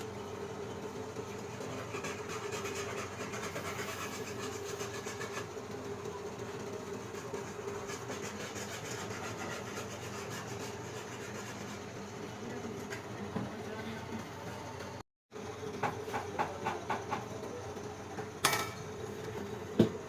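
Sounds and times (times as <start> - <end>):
mechanical hum: 0.0 - 20.0.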